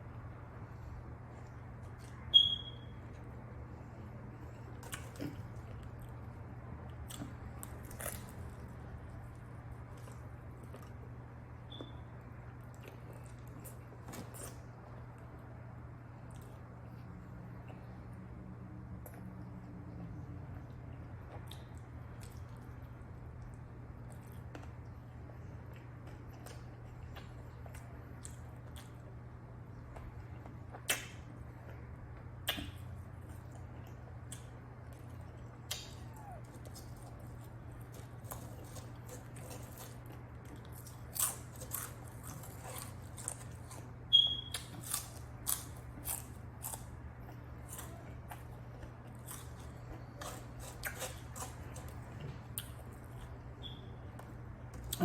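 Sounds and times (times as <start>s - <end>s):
steady low hum: 0.0s - 55.0s
person chewing: 3.8s - 11.1s, 32.4s - 53.4s.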